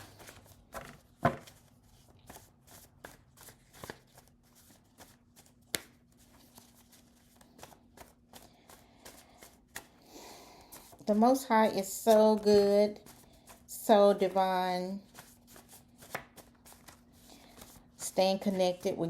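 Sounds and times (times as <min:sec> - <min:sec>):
cards being shuffled: 0:00.0 - 0:10.0, 0:15.0 - 0:18.9.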